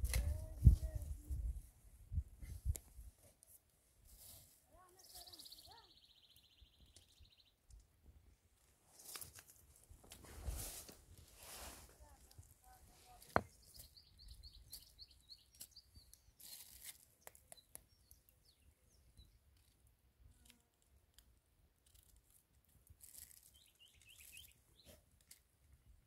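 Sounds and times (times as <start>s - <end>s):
small bird chirping: 4.9s - 7.8s, 13.4s - 19.8s, 23.0s - 25.0s.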